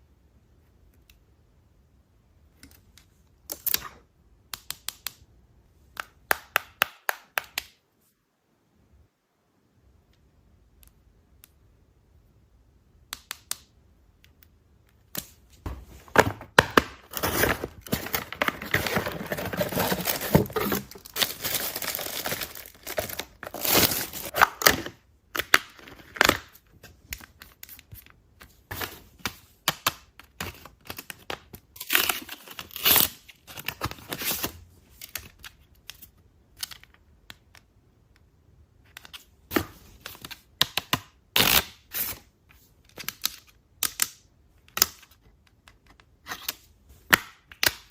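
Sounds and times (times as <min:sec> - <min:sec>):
packaging tearing and rustling: 0:16.1 - 0:24.8.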